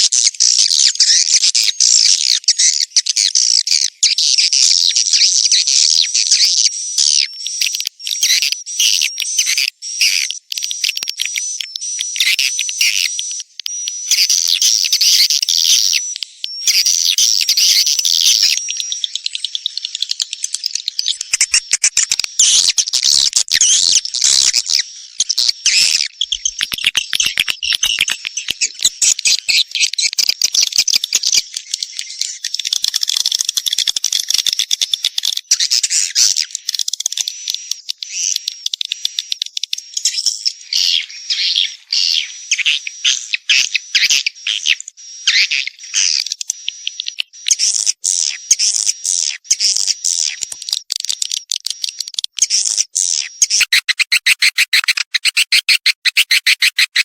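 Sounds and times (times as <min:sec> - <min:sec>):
swiftlets twittering: 0:21.1 - 0:32.0, 0:47.5 - 0:57.0.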